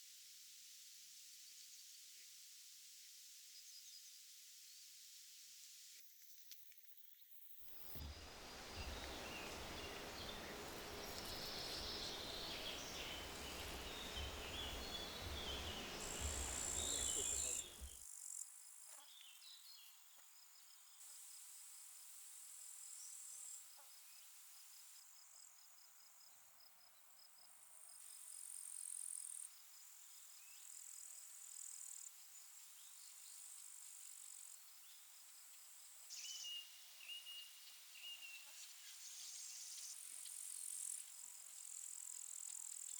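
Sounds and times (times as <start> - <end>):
insects chirring and trilling: 4.7 - 19.0
wind buffeting microphone: 8.0 - 17.9
small bird chirps: 8.0 - 18.0.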